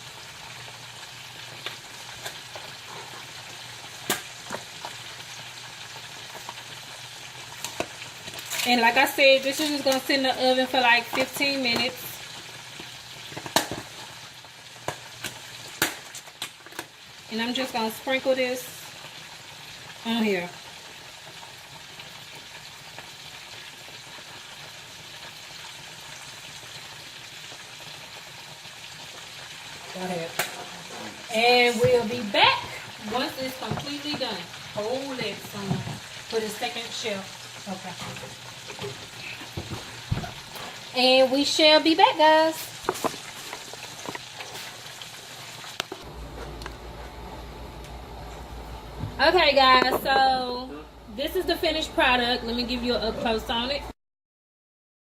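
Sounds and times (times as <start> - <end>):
food sizzling in a pan: 0.0 - 46.1
steady low hiss and hum: 46.1 - 53.9.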